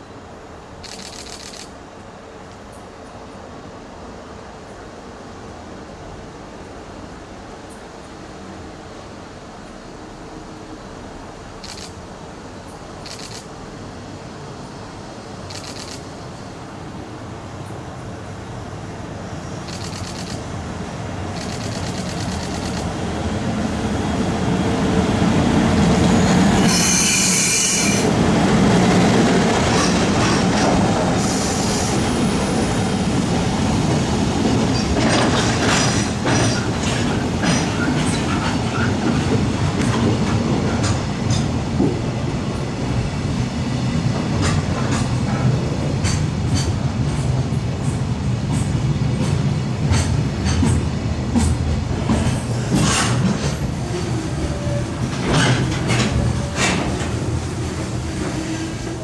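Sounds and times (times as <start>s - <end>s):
freight train rumble: 0.0s - 59.0s
wheels clicking over rail joints: 34.4s - 42.0s, 44.3s - 57.4s.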